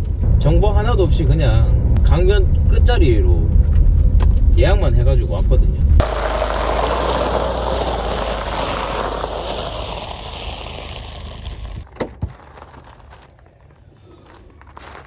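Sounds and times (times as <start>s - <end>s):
tyres rolling over gravel: 6.0s - 15.0s.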